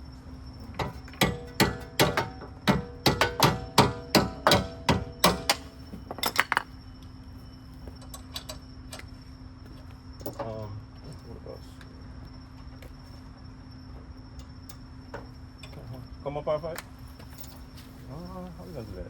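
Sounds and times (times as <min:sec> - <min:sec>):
hammer striking metal: 0:01.2 - 0:05.7.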